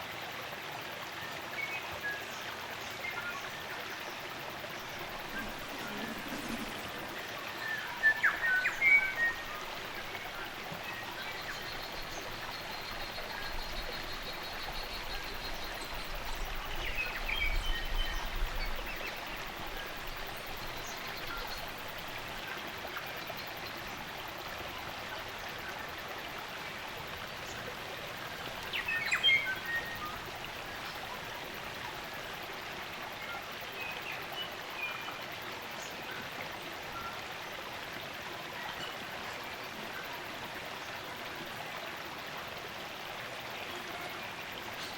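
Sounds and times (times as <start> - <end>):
stream running: 0.0 - 44.9
birds calling: 4.8 - 10.1.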